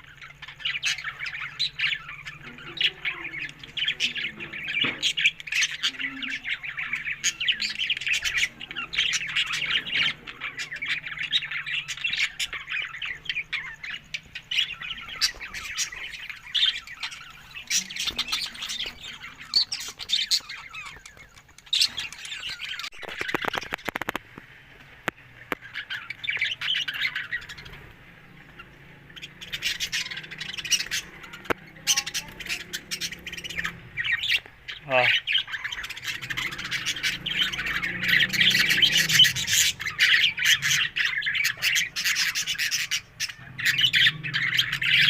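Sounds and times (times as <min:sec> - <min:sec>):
budgerigars chattering: 0:00.0 - 0:24.2, 0:25.4 - 0:45.0.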